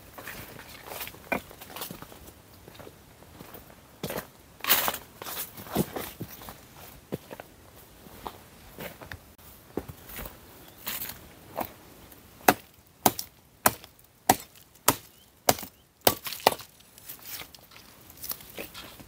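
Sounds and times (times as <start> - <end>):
blade chopping dry wood: 12.4 - 16.8.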